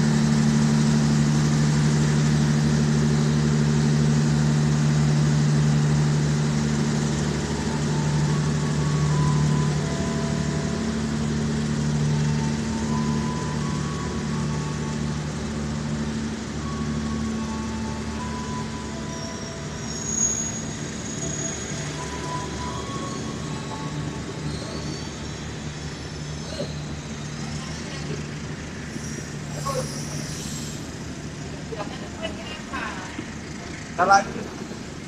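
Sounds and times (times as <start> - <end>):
train rolling past: 0.0 - 35.0
wheel squeals: 16.6 - 31.0.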